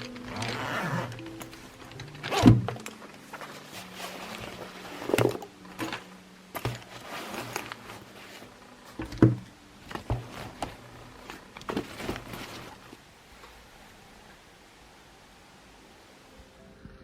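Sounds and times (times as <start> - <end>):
objects knocking and clunking: 0.0 - 12.9.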